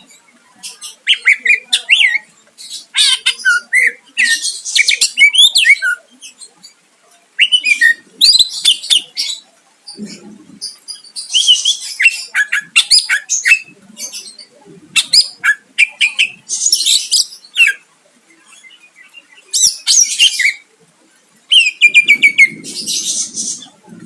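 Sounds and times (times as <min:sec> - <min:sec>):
bird singing whistles and trills: 0:07.4 - 0:09.2, 0:21.5 - 0:23.8.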